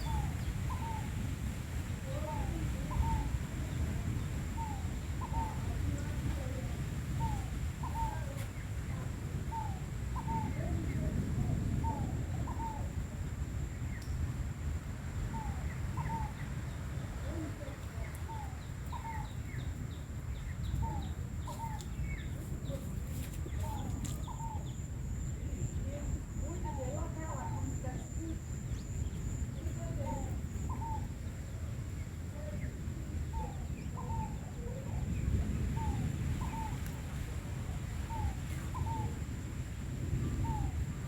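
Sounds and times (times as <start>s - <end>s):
bird chirping: 0.0s - 1.2s, 15.3s - 25.3s
wind buffeting microphone: 0.0s - 41.0s.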